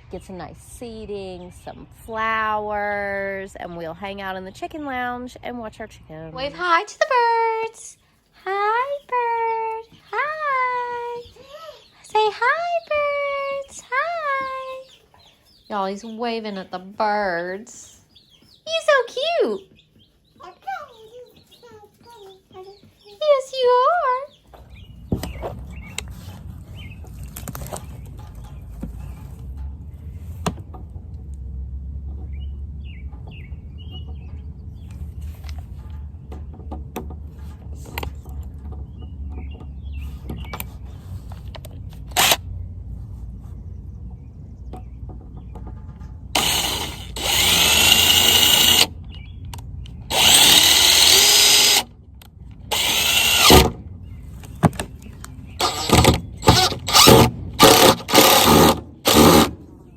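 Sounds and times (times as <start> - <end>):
power drill driving screws into wood: 42.1 - 42.4, 46.4 - 48.9, 50.1 - 51.9, 52.7 - 53.8, 55.6 - 59.6.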